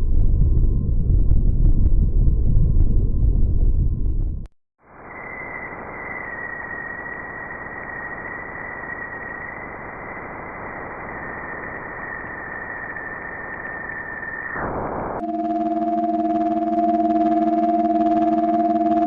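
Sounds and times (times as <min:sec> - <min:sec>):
thin high tone: 0:15.2 - 0:19.0.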